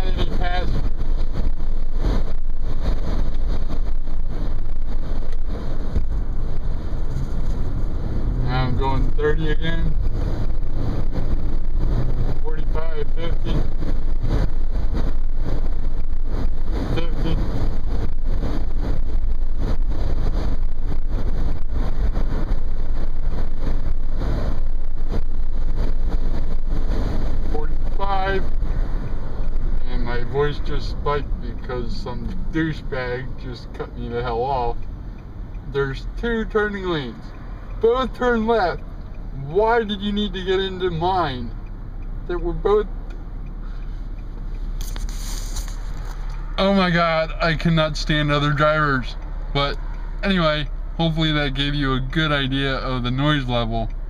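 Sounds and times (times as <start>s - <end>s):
road noise: 0.0s - 54.0s
wind rushing through car sunroof: 0.2s - 8.4s, 13.0s - 29.8s.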